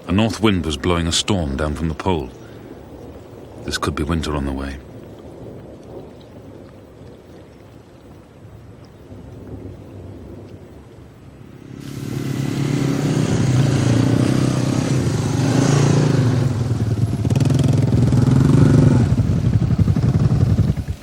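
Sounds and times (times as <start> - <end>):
engine running: 11.6 - 21.0.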